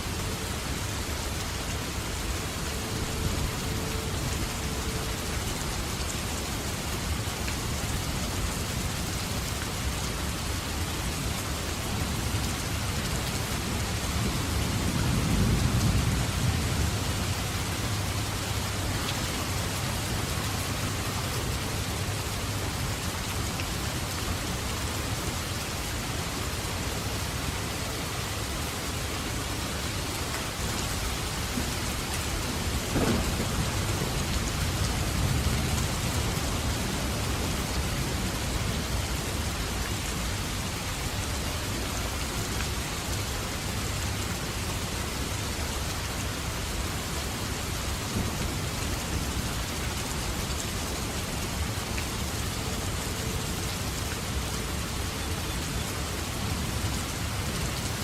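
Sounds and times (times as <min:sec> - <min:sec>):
heavy rain falling: 0:00.0 - 0:58.0
thunder rumbling: 0:31.5 - 0:39.1.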